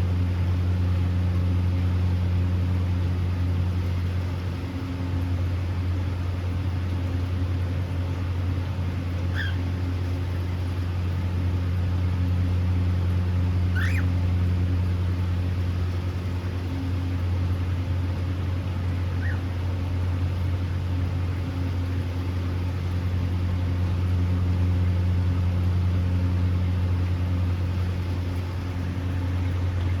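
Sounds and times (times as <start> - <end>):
low machine hum: 0.0 - 30.0
cockatiel chirps: 9.3 - 9.6, 13.7 - 14.1, 19.1 - 19.4.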